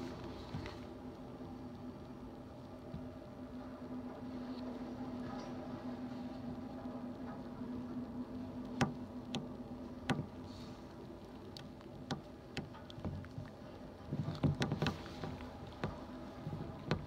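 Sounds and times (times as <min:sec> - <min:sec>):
distant freight train hum: 0:00.0 - 0:17.0
sharp clicks and knocks: 0:08.7 - 0:10.4, 0:11.5 - 0:17.0.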